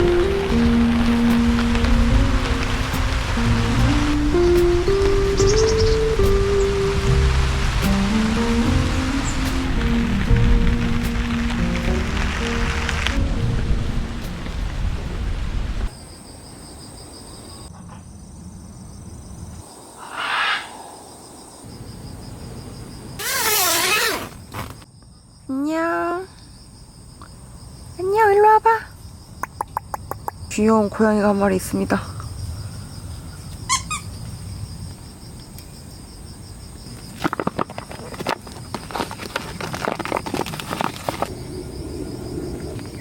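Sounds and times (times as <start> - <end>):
loud rustling rush: 0.0 - 5.5, 6.1 - 15.8
crickets chirping: 0.0 - 43.0.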